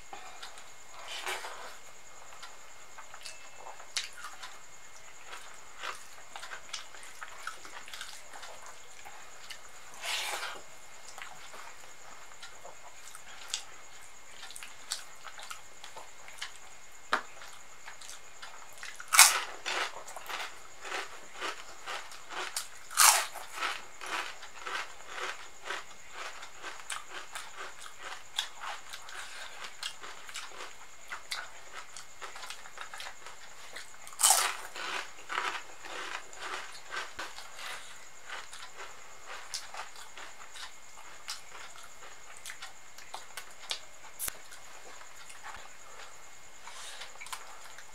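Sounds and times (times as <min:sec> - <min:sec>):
chewing and wet mouth sounds: 0:17.4 - 0:47.9
crunchy bites: 0:18.9 - 0:44.6.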